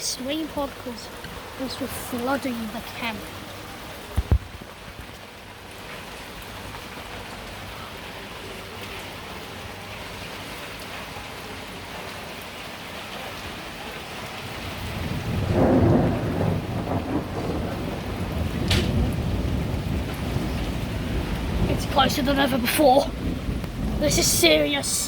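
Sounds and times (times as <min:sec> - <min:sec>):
heavy rain falling: 0:00.0 - 0:25.0
thunder rumbling: 0:14.4 - 0:25.0.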